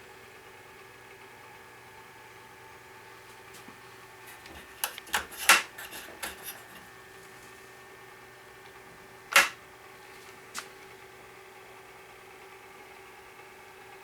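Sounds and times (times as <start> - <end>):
wooden toy parts clicking: 9.3 - 9.6.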